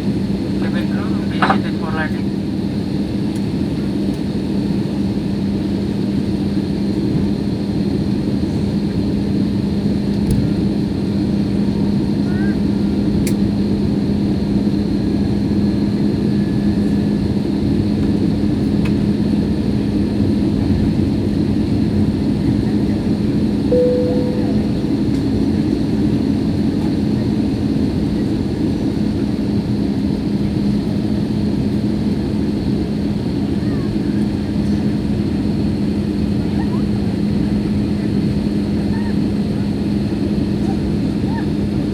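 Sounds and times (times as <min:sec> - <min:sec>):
jet engine and airflow noise: 0:00.0 - 0:11.1
short tone: 0:23.7 - 0:25.1
low hum: 0:23.7 - 0:25.2.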